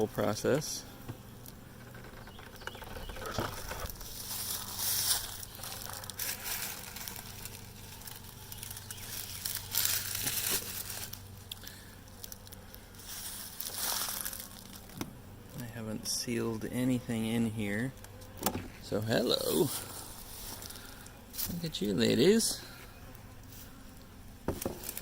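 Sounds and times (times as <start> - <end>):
faint steady hum: 0.0 - 25.0
rustling crinkling handling noise: 1.4 - 15.0, 18.0 - 22.8, 24.5 - 25.0.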